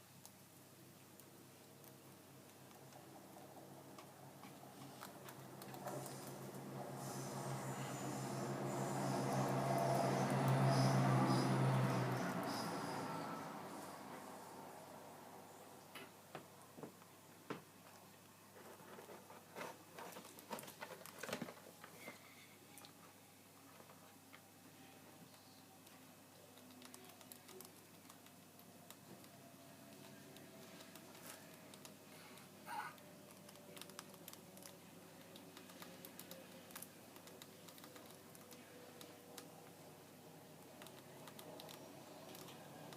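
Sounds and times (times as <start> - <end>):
rats making small clicks and taps: 3.9 - 6.5, 25.8 - 39.8, 40.6 - 42.9.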